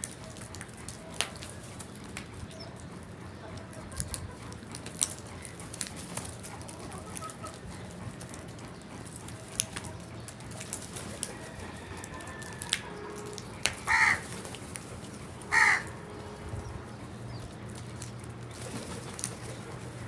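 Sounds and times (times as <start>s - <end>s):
crow cawing: 13.9s - 14.3s, 15.5s - 15.9s.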